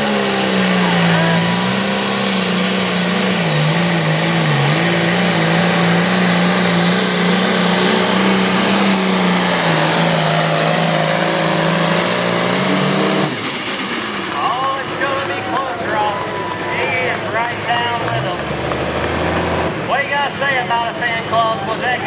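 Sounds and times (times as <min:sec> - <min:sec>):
diesel tractor engine at full power: 0:00.0 - 0:22.0.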